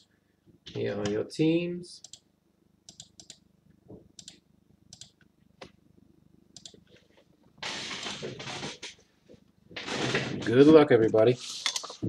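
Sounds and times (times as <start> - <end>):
computer clicks: 2.0 - 3.4, 4.2 - 5.3, 6.6 - 6.8.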